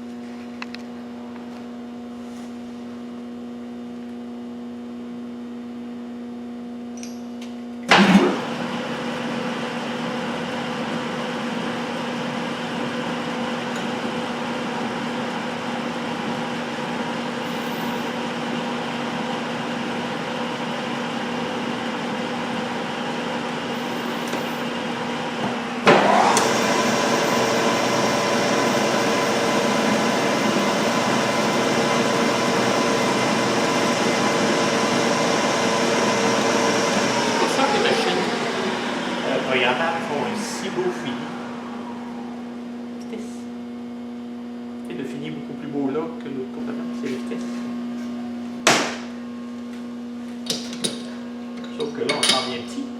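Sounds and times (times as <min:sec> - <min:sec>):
metal lathe humming and whining: 0:08.0 - 0:44.5.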